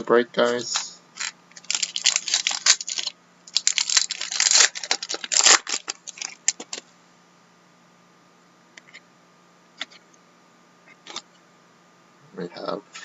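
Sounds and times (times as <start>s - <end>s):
wrapper tearing and crinkling: 0.5s - 6.8s.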